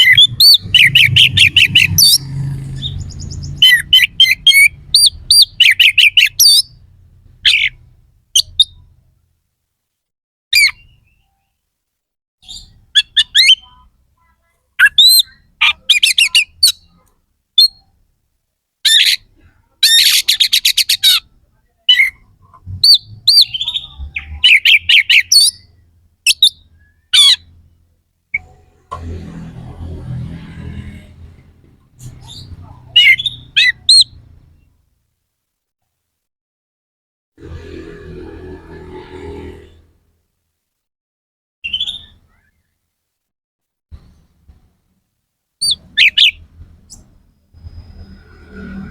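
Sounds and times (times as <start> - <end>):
bird singing harsh phrases: 0.0 - 8.9, 10.6 - 11.6, 12.4 - 17.9, 18.9 - 27.5, 32.1 - 34.7, 41.6 - 42.5.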